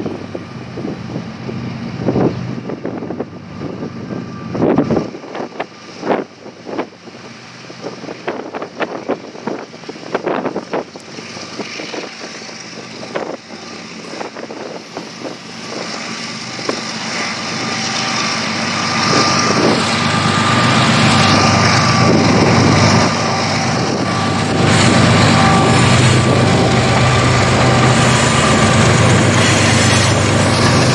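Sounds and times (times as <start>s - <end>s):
diesel locomotive rumbling: 0.0s - 30.9s
steady whine: 11.0s - 30.9s.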